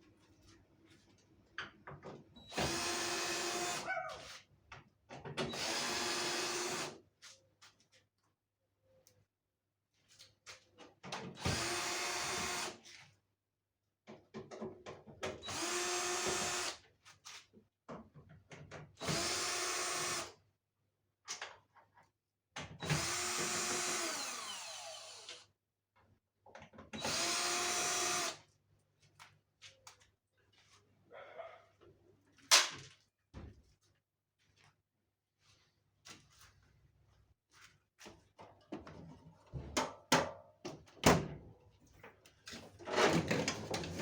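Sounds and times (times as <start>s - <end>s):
electric drill running: 2.6s - 3.8s, 5.5s - 6.9s, 11.5s - 12.8s, 15.5s - 16.8s, 19.0s - 20.3s, 22.9s - 25.4s, 27.0s - 28.4s.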